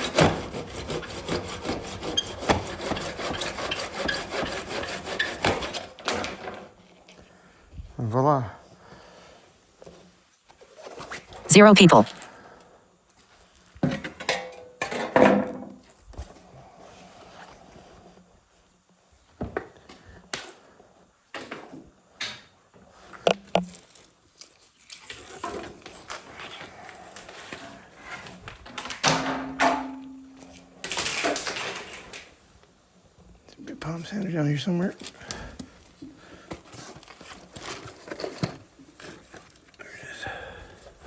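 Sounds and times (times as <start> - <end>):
tools and wood clattering: 13.8 - 15.8, 28.2 - 32.3, 36.5 - 39.8.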